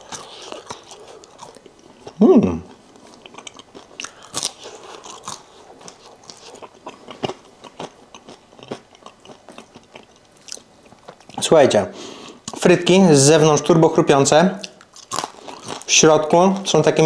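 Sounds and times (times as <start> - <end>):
person crunching fries: 0.0 - 11.4, 14.6 - 16.8.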